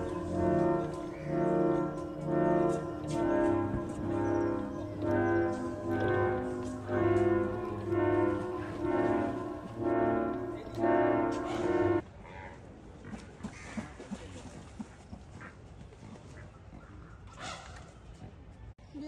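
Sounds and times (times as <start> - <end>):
brass-like music with held chords: 0.0 - 12.0.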